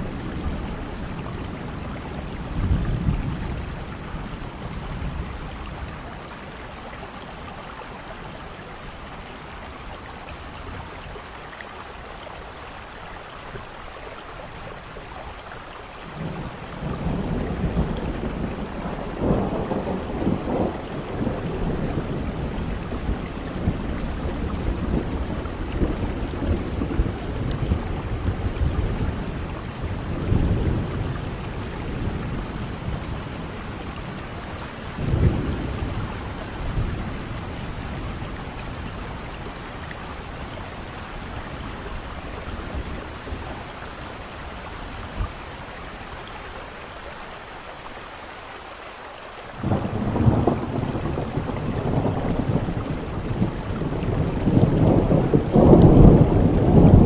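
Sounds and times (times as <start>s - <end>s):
heavy rain: 0.0s - 57.0s
thunder rumbling: 16.1s - 46.2s, 49.5s - 57.0s.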